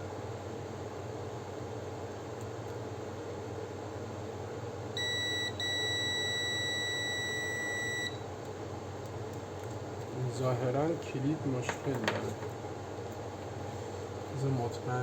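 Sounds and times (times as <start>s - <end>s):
multimeter continuity beeping: 5.0s - 8.2s.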